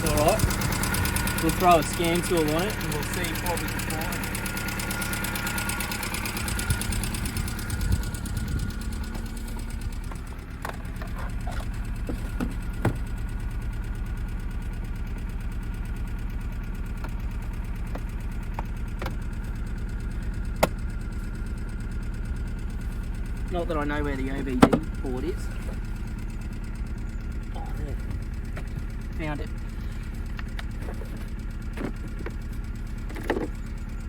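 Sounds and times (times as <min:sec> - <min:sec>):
car engine idling with tick: 0:00.0 - 0:34.0.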